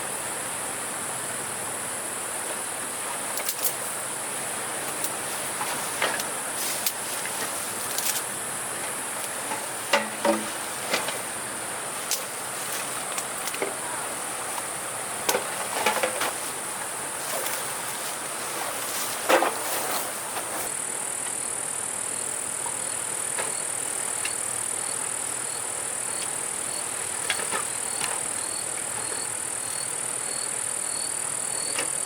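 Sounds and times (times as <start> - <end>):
knocks and clatters: 4.9 - 11.3.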